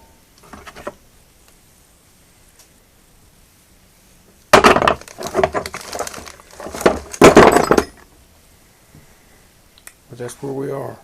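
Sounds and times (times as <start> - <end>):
hard objects clattering and clinking: 4.6 - 8.1.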